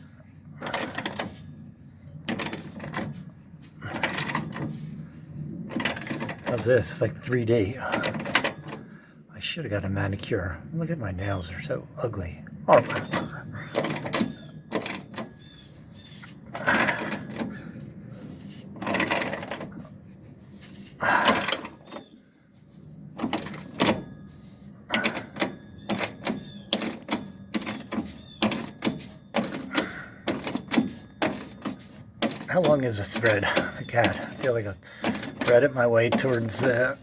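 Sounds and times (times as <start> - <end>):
socket ratchet clicking: 13.0 - 15.4, 25.0 - 35.6.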